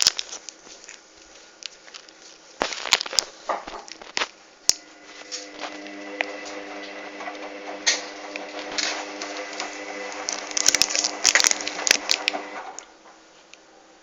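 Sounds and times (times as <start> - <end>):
washing machine motor humming: 4.7 - 13.0.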